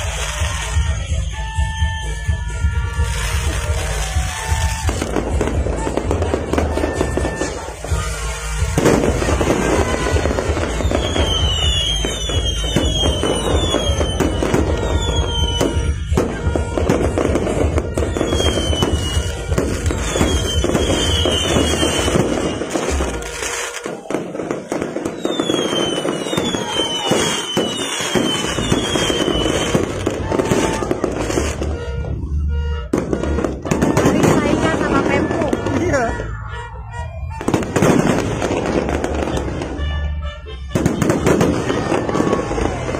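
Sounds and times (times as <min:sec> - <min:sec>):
fireworks crackling: 0:00.0 - 0:42.9
fireworks whistles falling in pitch: 0:00.0 - 0:42.9.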